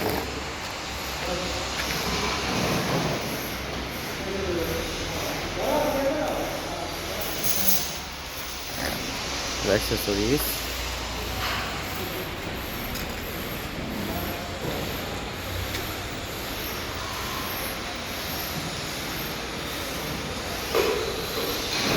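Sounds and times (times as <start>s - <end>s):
machinery rumble and hiss: 0.0s - 21.9s.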